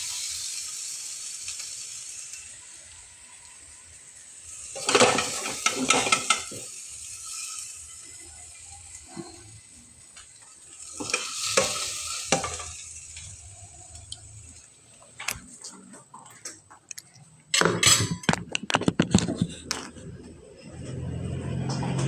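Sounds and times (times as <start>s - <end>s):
food sizzling in a frying pan: 0.0s - 15.6s
utensil scraping a pan: 4.7s - 6.7s, 10.9s - 13.4s.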